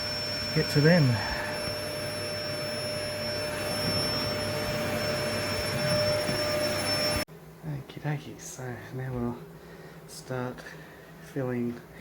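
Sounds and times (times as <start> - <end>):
vacuum hissing with high whine: 0.0 - 7.3.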